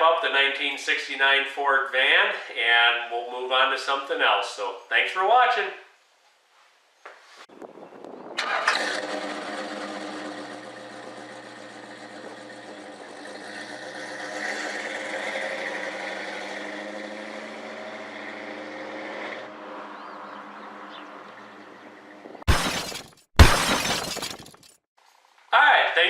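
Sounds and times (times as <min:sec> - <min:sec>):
car engine cranking and idling: 0:08.4 - 0:22.2.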